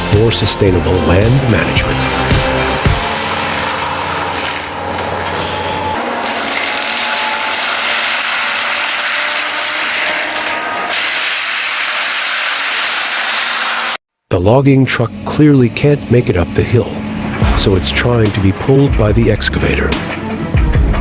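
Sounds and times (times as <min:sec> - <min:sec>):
heavy machinery grinding: 0:00.0 - 0:14.0
machinery low rumble: 0:15.1 - 0:19.9.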